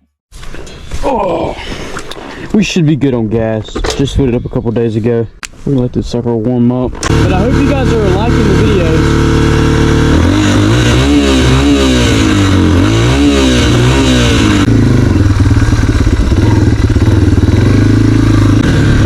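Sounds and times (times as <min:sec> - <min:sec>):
dirt bike engine revving: 0:07.0 - 0:19.0.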